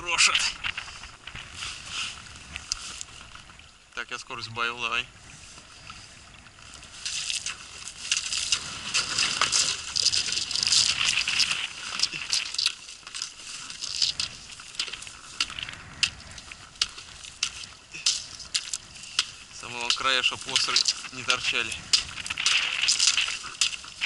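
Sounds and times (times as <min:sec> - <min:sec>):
ice cracking and clinking: 0:07.1 - 0:15.7, 0:16.8 - 0:24.0.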